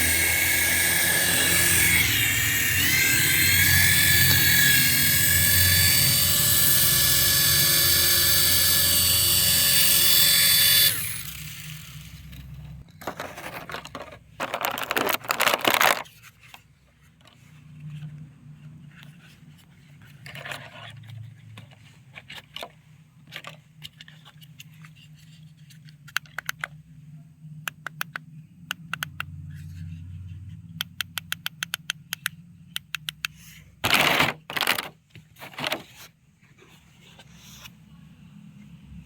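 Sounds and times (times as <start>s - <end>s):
plastic clicks and scrapes: 12.3s - 16.6s, 19.0s - 26.8s, 30.8s - 36.1s
packaging rustling: 12.9s - 16.4s.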